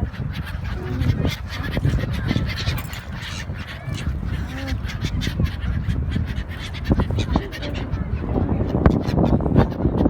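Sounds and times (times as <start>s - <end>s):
seabirds calling: 0.0s - 10.0s.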